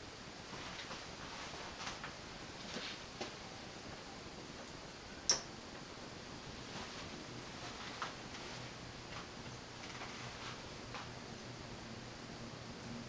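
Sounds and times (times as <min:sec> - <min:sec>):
ceiling fan whirring: 0:00.0 - 0:13.0
sharp click: 0:05.3 - 0:05.5.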